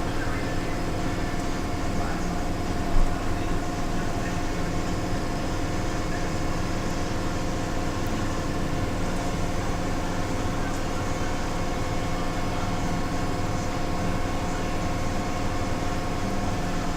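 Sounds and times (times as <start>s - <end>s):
cleaning machine humming: 0.0s - 16.9s.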